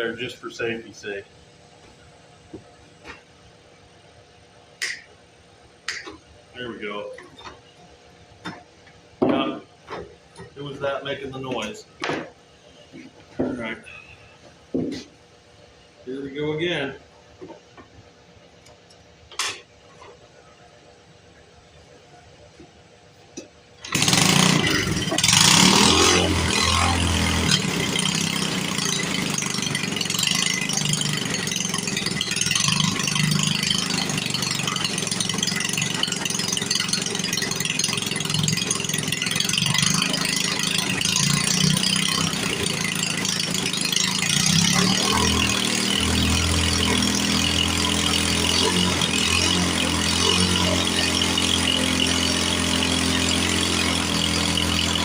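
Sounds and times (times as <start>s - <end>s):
single-cylinder engine running: 23.8s - 55.0s.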